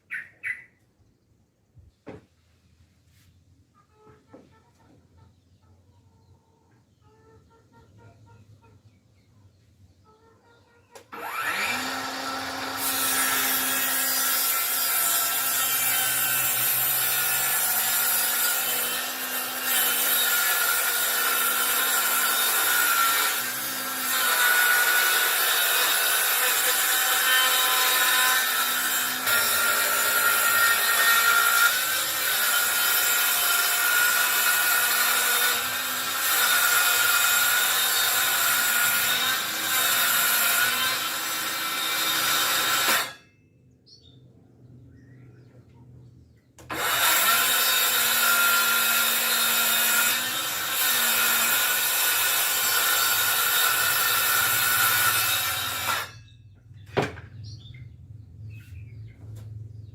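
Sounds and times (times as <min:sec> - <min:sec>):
circular saw cutting wood: 0:11.0 - 0:43.2, 0:46.6 - 0:56.2.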